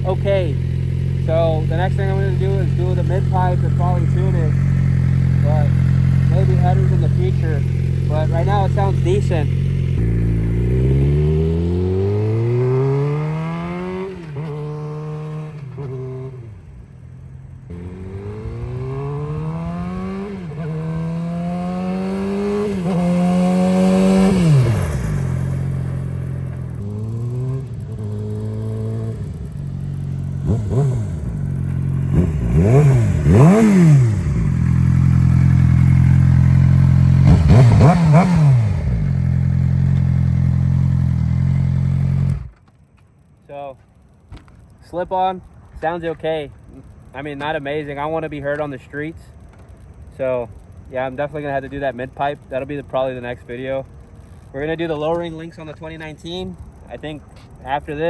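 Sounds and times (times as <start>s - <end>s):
motorcycle engine accelerating: 0.0s - 42.7s
motorcycle engine idling: 0.0s - 58.0s.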